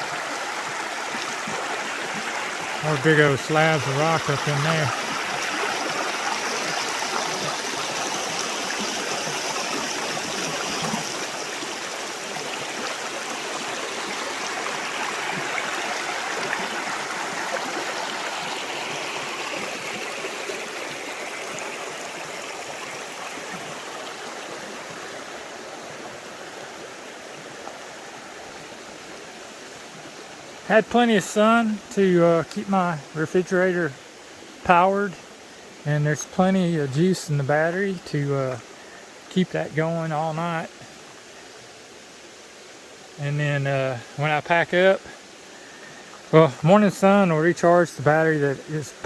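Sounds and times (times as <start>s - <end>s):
creek water rushing: 0.0s - 49.0s.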